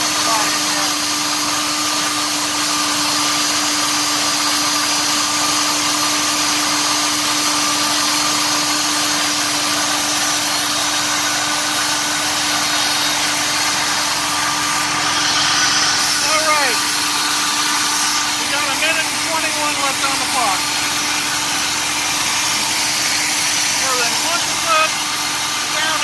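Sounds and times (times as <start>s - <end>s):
engine fast idle: 0.0s - 26.0s
fan rushing: 6.7s - 26.0s.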